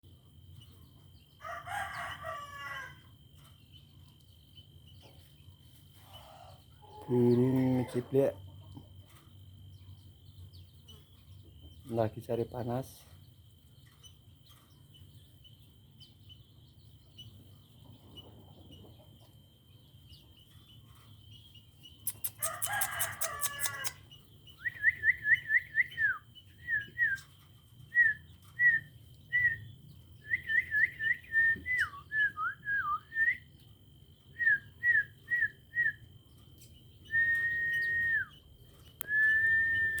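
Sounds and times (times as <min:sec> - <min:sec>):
bird chattering rattle: 0:21.9 - 0:24.2
bird whistling: 0:24.6 - 0:27.3, 0:27.9 - 0:33.5, 0:34.3 - 0:36.1, 0:37.0 - 0:38.4, 0:39.0 - 0:40.0.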